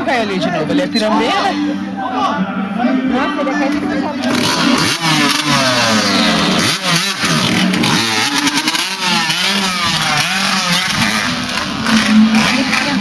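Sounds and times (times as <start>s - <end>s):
dirt bike engine revving: 4.1s - 13.0s.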